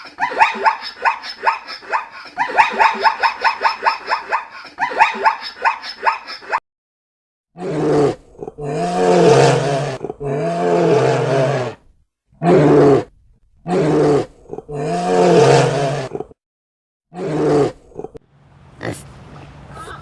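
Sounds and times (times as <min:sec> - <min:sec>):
large animal calling: 0:18.8 - 0:20.0.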